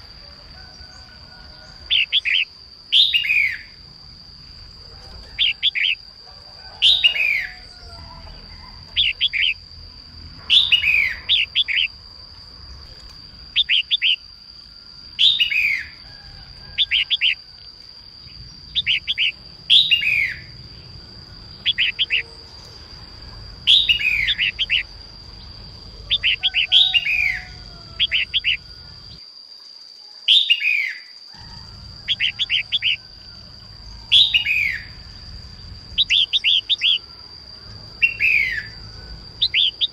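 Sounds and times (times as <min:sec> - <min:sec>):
bird calling and chirping: 0:01.8 - 0:03.8, 0:05.2 - 0:06.0, 0:06.8 - 0:09.6, 0:10.4 - 0:12.0, 0:13.5 - 0:14.3, 0:15.2 - 0:16.0, 0:16.8 - 0:17.4, 0:18.5 - 0:20.9, 0:21.5 - 0:22.4, 0:23.6 - 0:25.0, 0:25.8 - 0:29.1, 0:30.3 - 0:31.0, 0:31.9 - 0:33.1, 0:33.9 - 0:35.1, 0:35.9 - 0:37.1, 0:38.0 - 0:39.9.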